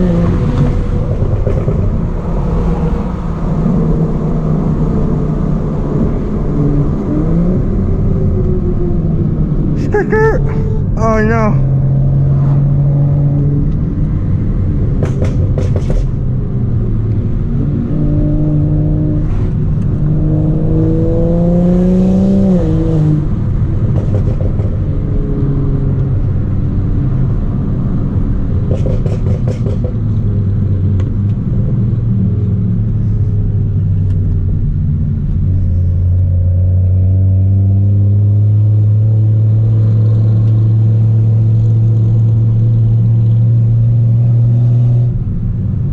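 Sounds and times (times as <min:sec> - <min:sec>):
car engine accelerating hard: 0:11.6 - 0:45.9.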